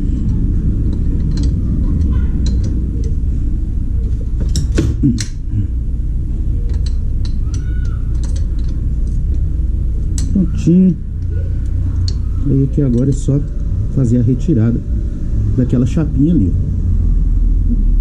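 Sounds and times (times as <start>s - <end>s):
steady low rumble: 0.0s - 18.0s
wrench clicking on bolts: 0.3s - 3.2s, 6.7s - 10.4s.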